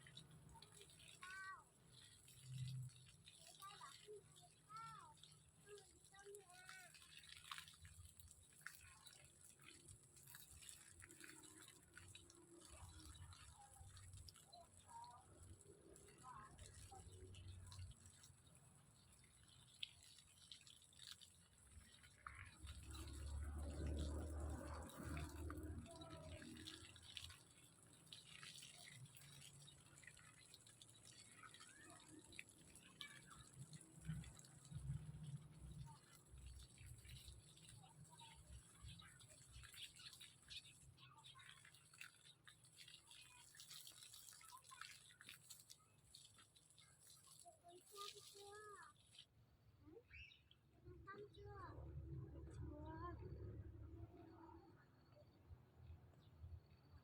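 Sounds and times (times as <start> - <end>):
faint drip-like clicks: 0.1 - 49.3.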